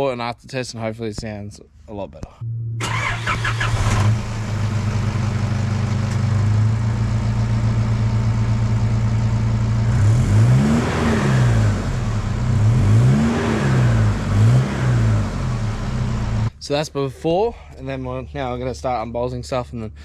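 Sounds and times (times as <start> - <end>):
engine idling and revving: 2.8 - 16.5.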